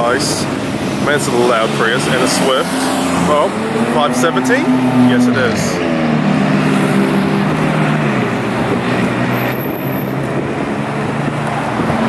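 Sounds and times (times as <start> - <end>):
background traffic: 0.0 - 12.0.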